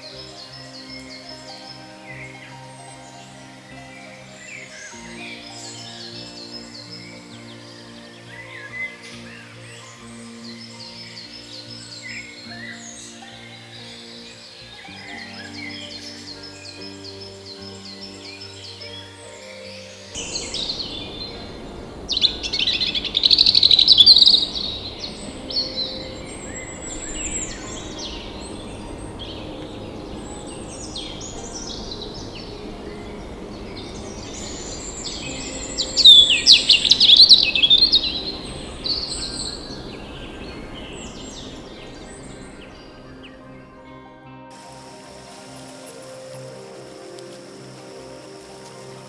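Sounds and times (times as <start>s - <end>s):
steady background hiss: 0.0s - 49.0s
birds chirping: 20.0s - 43.9s.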